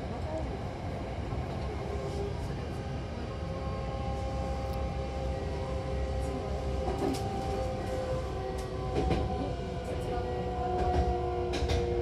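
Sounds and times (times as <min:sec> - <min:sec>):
train wheels rumbling: 0:03.5 - 0:12.0.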